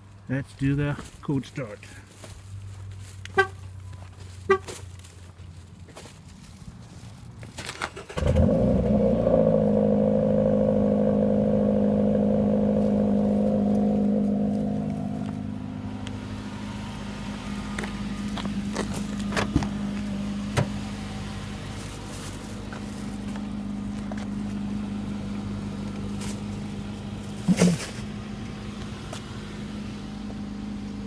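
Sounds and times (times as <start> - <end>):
car engine idling: 7.9 - 31.0.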